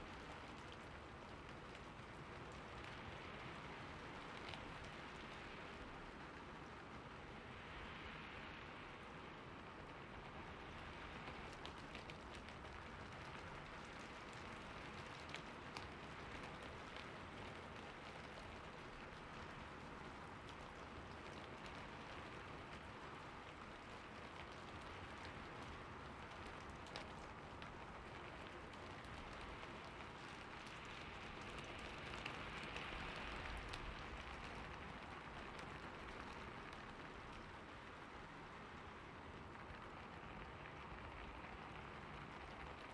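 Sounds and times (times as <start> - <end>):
rain falling: 0.0 - 42.9.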